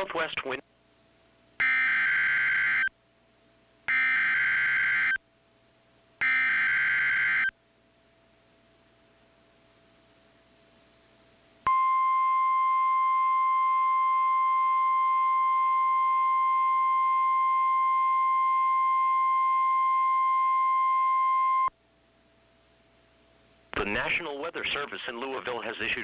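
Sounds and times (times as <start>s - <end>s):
steady alarm tone: 1.6s - 2.9s, 3.9s - 5.2s, 6.2s - 7.5s.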